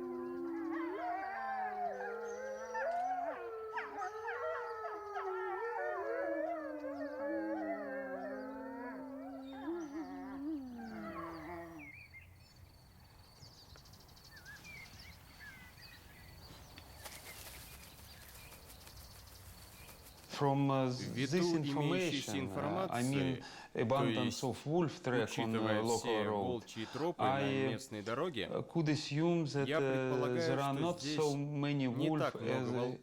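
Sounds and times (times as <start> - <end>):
wolves howling: 0.0 - 12.1, 21.2 - 23.3.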